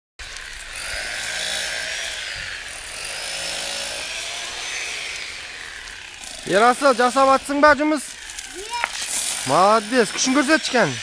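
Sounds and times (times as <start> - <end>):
tool rasping with faint whine: 0.2 - 11.0.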